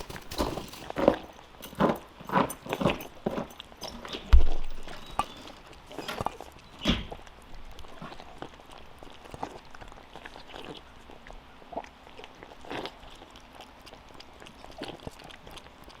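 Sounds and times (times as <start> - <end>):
hoof steps and knocks: 0.0 - 7.2
animals chewing feed: 0.0 - 16.0.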